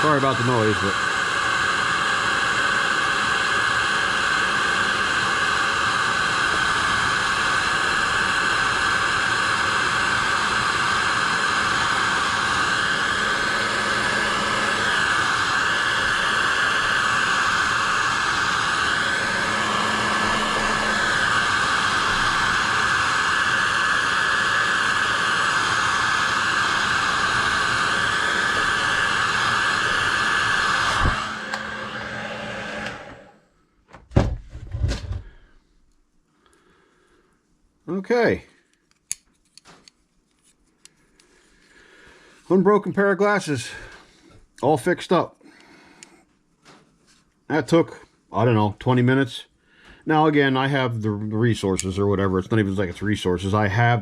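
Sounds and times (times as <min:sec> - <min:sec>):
heat gun blowing: 0:00.0 - 0:33.4.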